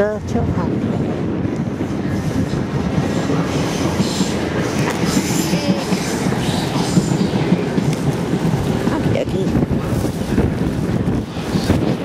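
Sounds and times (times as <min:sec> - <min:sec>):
wheels rumbling on rail: 0:00.0 - 0:12.0.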